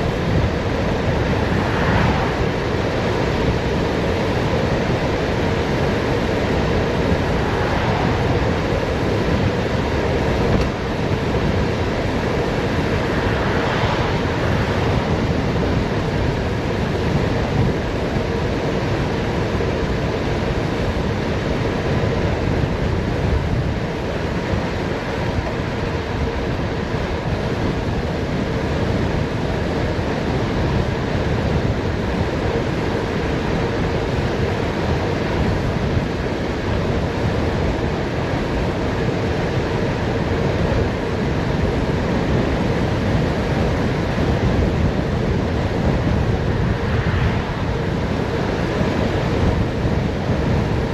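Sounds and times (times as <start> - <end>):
bicycle tyre noise: 0.0 - 17.8
wind rushing over microphone: 0.0 - 50.9.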